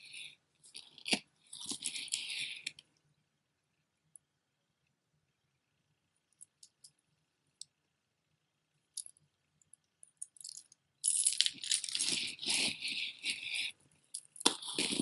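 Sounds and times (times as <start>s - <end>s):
jewelry clattering: 10.0s - 15.0s.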